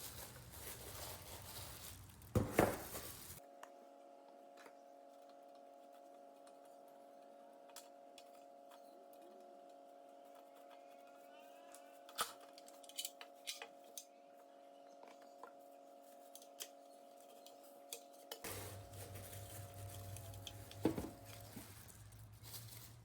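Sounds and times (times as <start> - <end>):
small hard objects clinking: 18.3 - 23.0.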